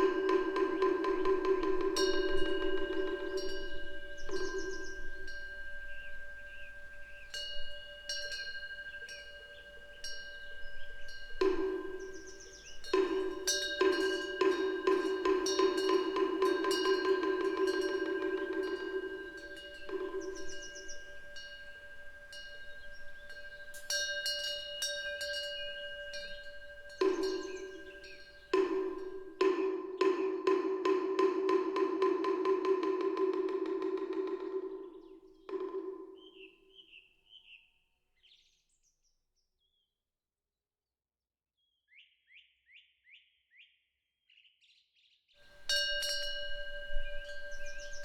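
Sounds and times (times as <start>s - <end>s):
wind bell ringing: 0.0s - 30.3s, 45.5s - 48.0s
bird chirps: 2.2s - 30.2s, 46.4s - 48.0s.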